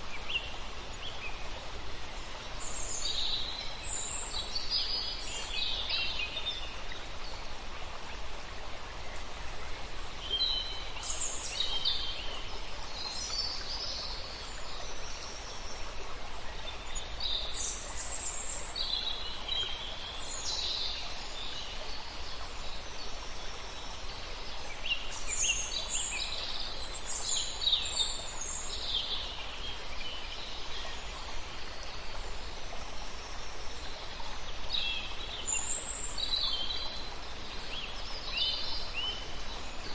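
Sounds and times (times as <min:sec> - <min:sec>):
steady background hiss: 0:00.0 - 0:39.9.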